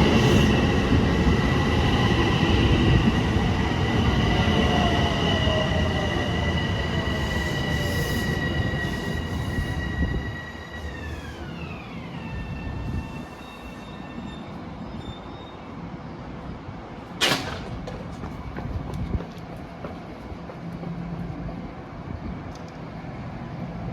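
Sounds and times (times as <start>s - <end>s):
high train whine: 0.0s - 23.9s
train wheels rumbling: 17.1s - 21.9s.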